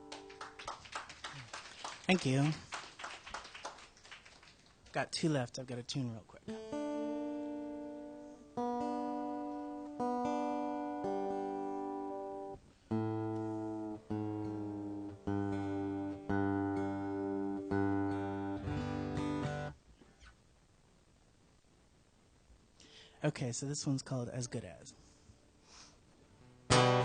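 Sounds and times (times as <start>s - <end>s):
acoustic guitar strings plucked: 6.4s - 19.8s, 26.4s - 27.0s.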